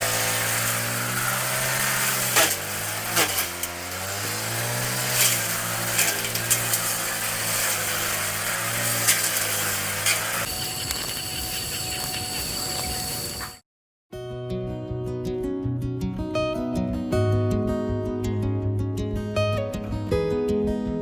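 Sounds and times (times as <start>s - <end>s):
lawn mower engine running: 0.0s - 13.6s.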